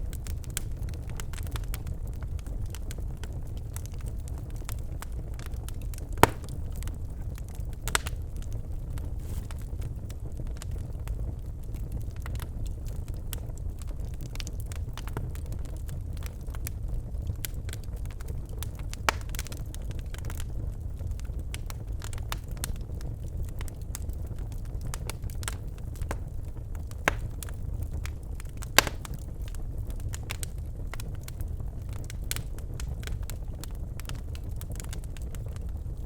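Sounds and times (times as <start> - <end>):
logs crackling and popping: 0.2 - 9.7, 18.6 - 20.4, 23.5 - 35.7
fire rumbling: 6.2 - 6.6, 25.3 - 30.7.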